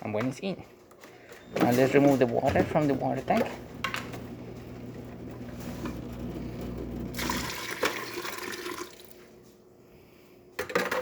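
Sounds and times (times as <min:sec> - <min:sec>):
water pouring into sink: 0:07.1 - 0:09.2.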